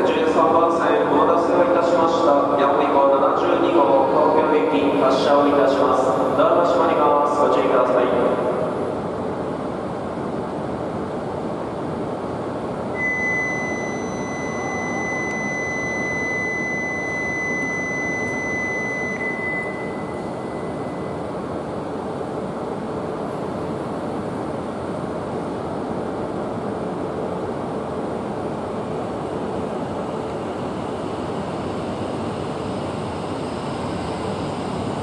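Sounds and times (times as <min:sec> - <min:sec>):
high-pitched tone: 0:13.0 - 0:21.2.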